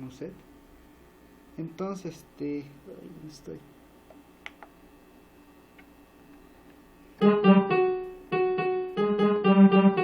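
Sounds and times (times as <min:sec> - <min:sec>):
keyboard accordion and piano chords: 0:07.2 - 0:10.0.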